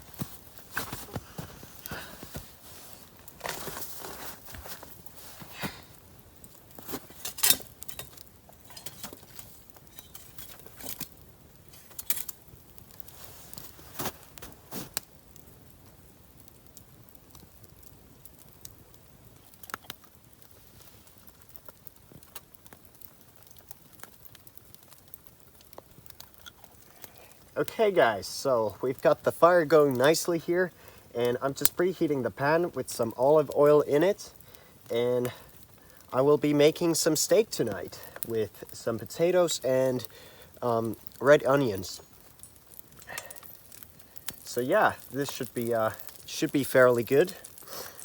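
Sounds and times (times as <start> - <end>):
campfire crackling: 0.0 - 48.0.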